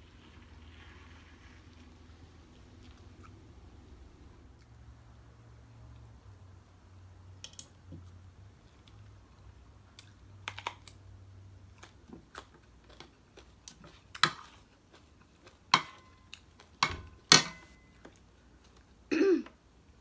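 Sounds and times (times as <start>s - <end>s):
utensils and dishes clicking: 16.8s - 17.8s.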